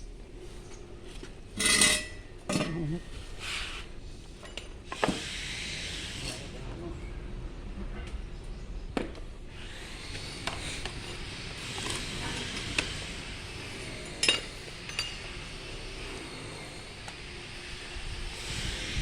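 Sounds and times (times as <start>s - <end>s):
hand tools clinking on metal: 1.6s - 3.0s, 13.9s - 15.5s.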